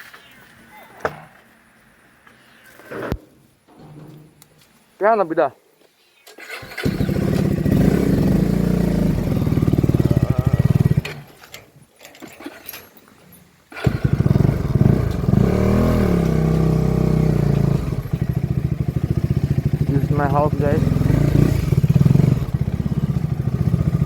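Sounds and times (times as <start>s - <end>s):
motorcycle engine running: 6.8s - 11.3s, 13.8s - 24.0s.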